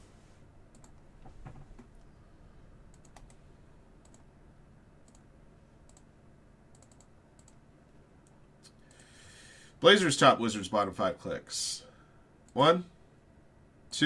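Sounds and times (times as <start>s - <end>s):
computer mouse clicks: 0.7s - 2.1s, 2.9s - 3.4s, 4.0s - 4.3s, 5.0s - 6.1s, 6.7s - 7.6s, 8.2s - 9.2s.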